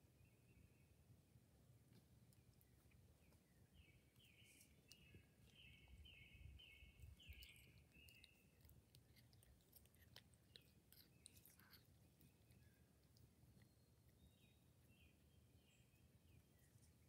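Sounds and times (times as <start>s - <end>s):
bird singing repeated notes: 3.8s - 8.4s.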